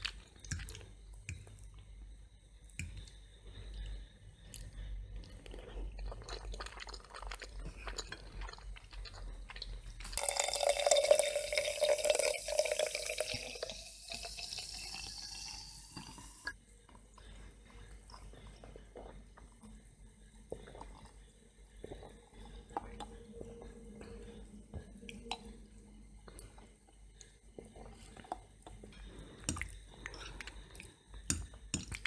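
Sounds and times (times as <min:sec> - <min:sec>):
drink poured into a glass: 0:10.0 - 0:16.3.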